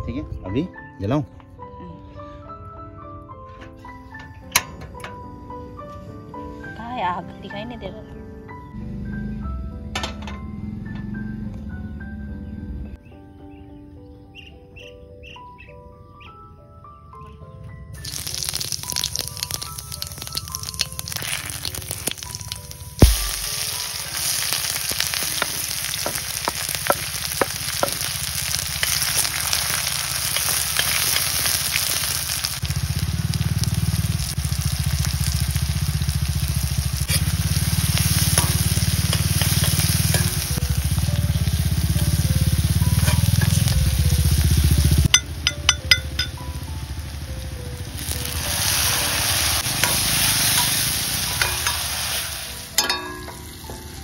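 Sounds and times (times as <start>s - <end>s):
oil sizzling in a pan: 18.0s - 54.0s
metal ladle scraping a pan: 37.1s - 37.4s, 48.7s - 53.5s.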